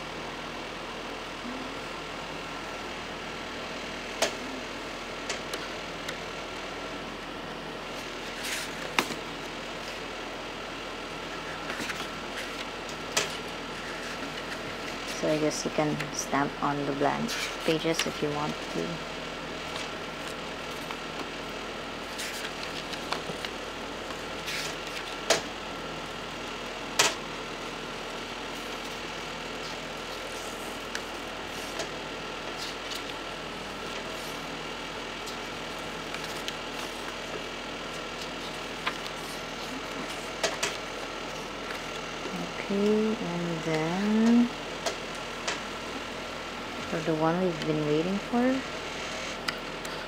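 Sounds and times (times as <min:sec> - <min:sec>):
steady background hum: 0:00.0 - 0:50.0
booklet pages turning: 0:08.0 - 0:09.2, 0:11.4 - 0:15.2, 0:19.6 - 0:21.3, 0:22.0 - 0:25.4, 0:32.5 - 0:33.2, 0:35.2 - 0:42.0.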